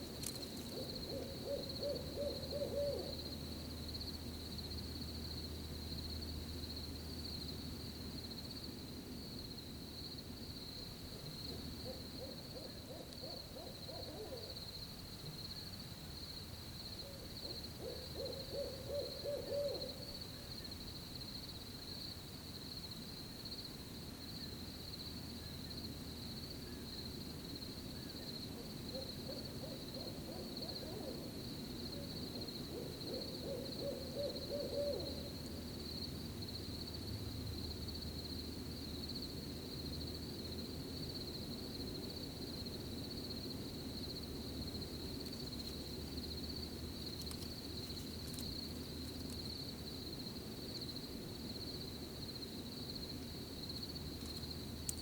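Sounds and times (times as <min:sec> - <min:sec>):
cricket trill: 0:00.0 - 0:55.0
owl hooting: 0:00.7 - 0:03.3, 0:11.5 - 0:14.6, 0:17.0 - 0:20.5, 0:28.0 - 0:31.4, 0:32.0 - 0:35.4.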